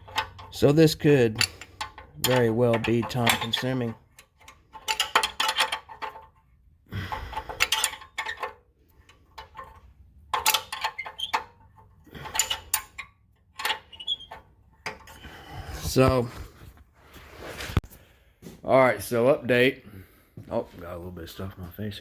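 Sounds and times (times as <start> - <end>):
wrench clinking on metal bolt: 0.0 - 6.4, 7.1 - 15.2.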